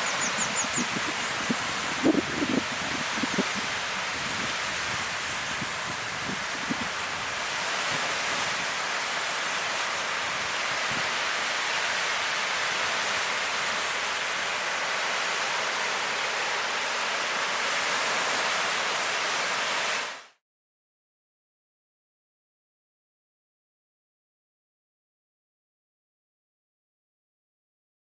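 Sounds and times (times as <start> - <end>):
ocean waves breaking on beach: 0.0 - 20.3.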